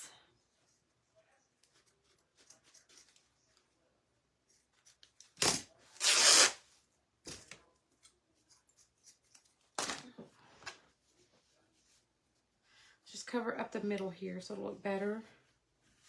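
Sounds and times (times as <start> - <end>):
ribbon being cut rasping: 5.4 - 6.6.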